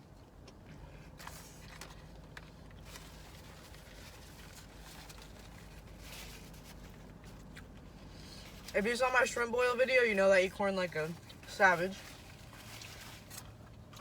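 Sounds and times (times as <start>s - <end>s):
low steady hum: 0.0s - 14.0s
biting and chewing corn: 12.0s - 14.0s.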